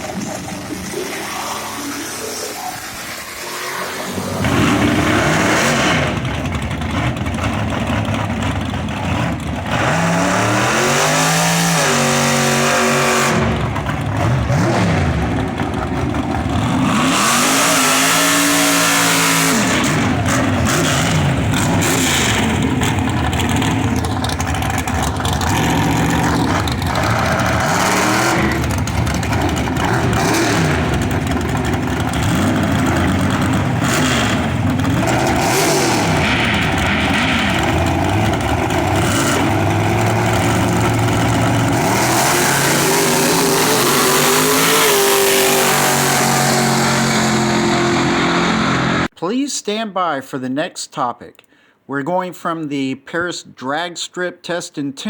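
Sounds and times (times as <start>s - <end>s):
racing car engines revving: 0.0s - 49.1s.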